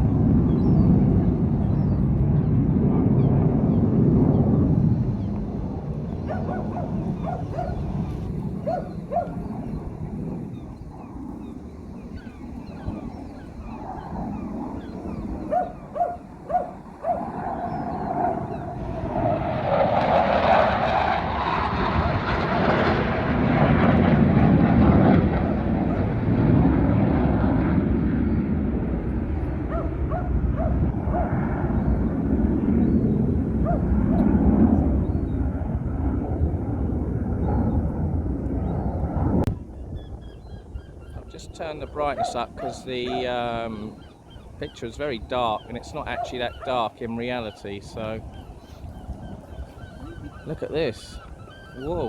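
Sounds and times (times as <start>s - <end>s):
jet fighter flying past: 0.0s - 52.0s
short calls: 40.1s - 52.0s.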